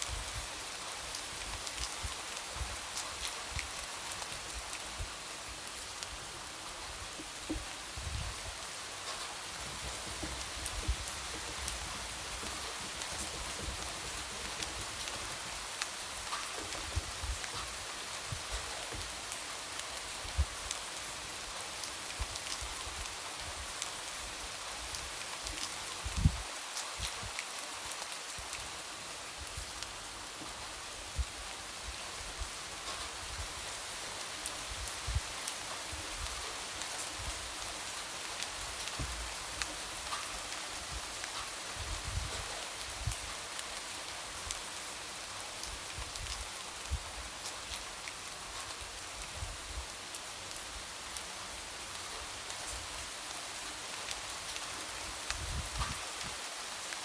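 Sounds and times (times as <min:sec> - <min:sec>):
light rain falling: 0:00.0 - 0:57.0
raindrops tapping on window: 0:09.1 - 0:19.2.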